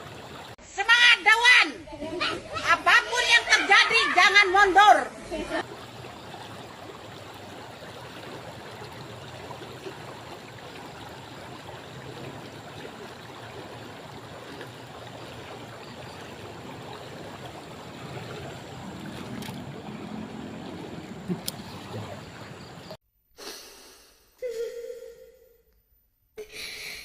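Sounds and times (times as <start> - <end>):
water rushing: 0.0 - 0.6, 2.8 - 23.0.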